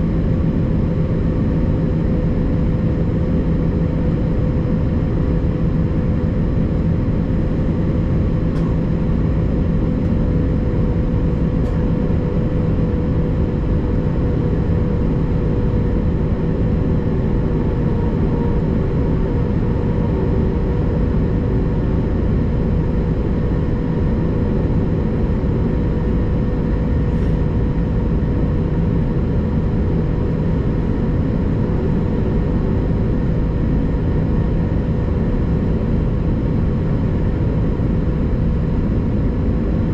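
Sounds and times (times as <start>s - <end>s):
jet engine drone: 0.0s - 39.9s.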